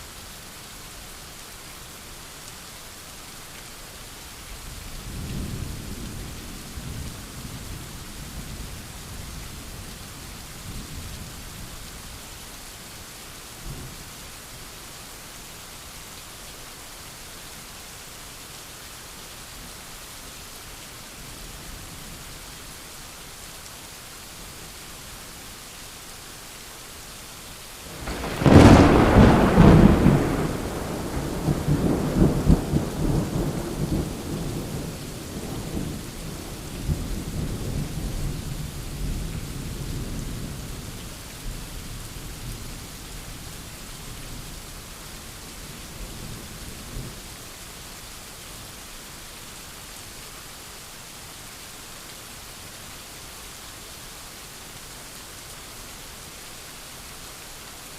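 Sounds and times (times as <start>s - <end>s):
steady rain hiss: 0.0s - 57.9s
thunderclap rumbling: 27.9s - 36.1s.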